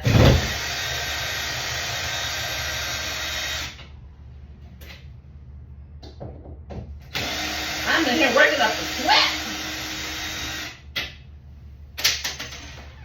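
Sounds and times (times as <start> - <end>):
power drill motor running: 0.1 - 3.8, 7.1 - 10.8.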